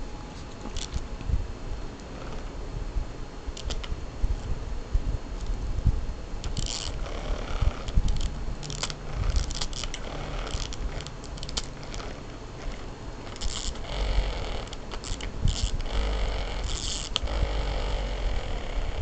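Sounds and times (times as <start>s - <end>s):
toy scraping and rustling: 0.0s - 1.2s, 6.4s - 19.0s.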